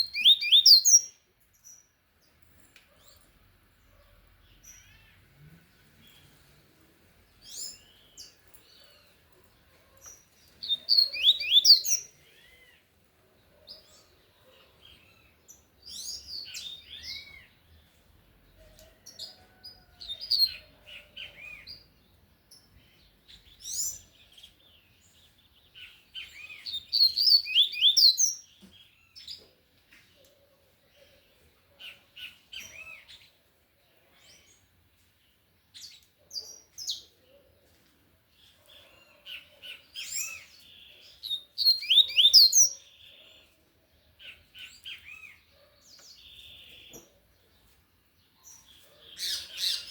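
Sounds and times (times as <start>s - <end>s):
bird singing high chirps: 0.0s - 1.9s, 10.6s - 12.9s, 25.7s - 29.3s, 39.7s - 43.2s.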